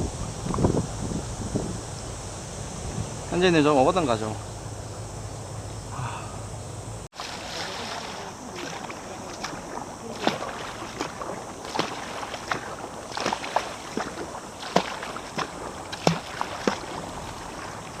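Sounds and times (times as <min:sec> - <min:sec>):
steady hiss: 0:00.0 - 0:18.0
paddle splashes in water: 0:07.1 - 0:18.0.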